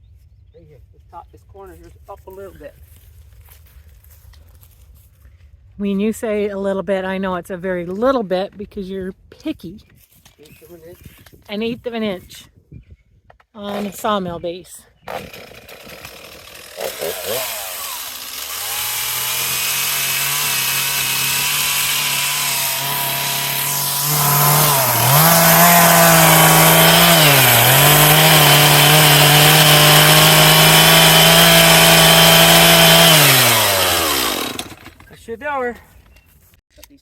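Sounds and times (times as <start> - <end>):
chainsaw revving: 15.1 - 35.1.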